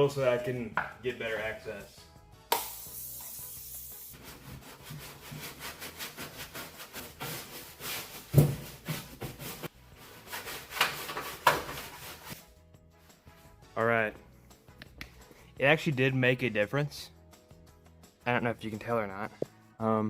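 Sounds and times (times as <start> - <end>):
short hiss: 2.5 - 4.2.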